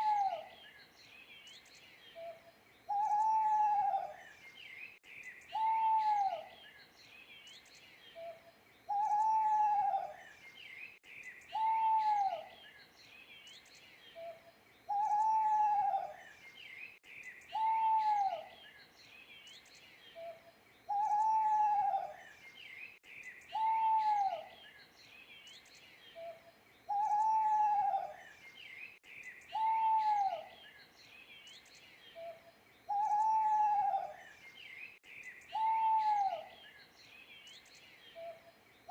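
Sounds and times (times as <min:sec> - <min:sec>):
owl hooting: 0:00.0 - 0:00.5, 0:02.2 - 0:04.2, 0:05.5 - 0:06.5, 0:08.2 - 0:10.2, 0:11.5 - 0:12.5, 0:14.2 - 0:16.2, 0:17.5 - 0:18.5, 0:20.2 - 0:22.2, 0:23.5 - 0:24.5, 0:26.2 - 0:28.2, 0:29.5 - 0:30.5, 0:32.2 - 0:34.2, 0:35.5 - 0:36.6
small birds chirping: 0:00.0 - 0:38.9.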